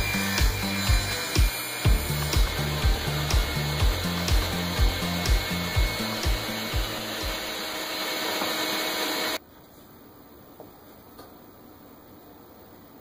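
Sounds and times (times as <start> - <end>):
music with thumping beat: 0.0 - 7.4
power tool running loudly: 0.0 - 9.4.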